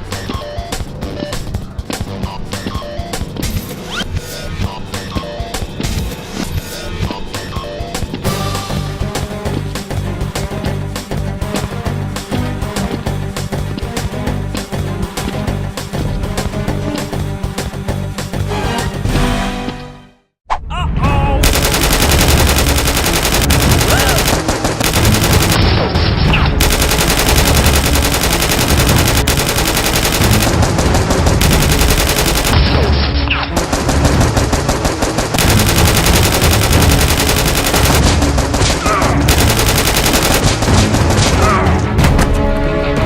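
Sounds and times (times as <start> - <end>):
rapid automatic gunfire: 21.4 - 32.8, 33.5 - 41.6.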